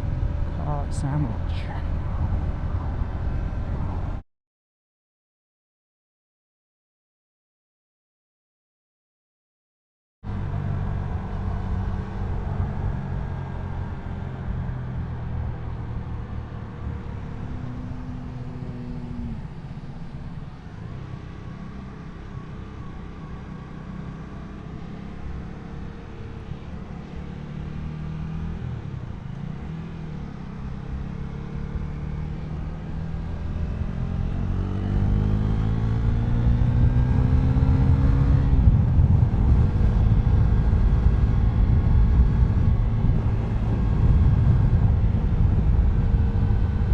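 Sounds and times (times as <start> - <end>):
wind rumble on microphone: 0.0 - 4.2, 32.6 - 46.9.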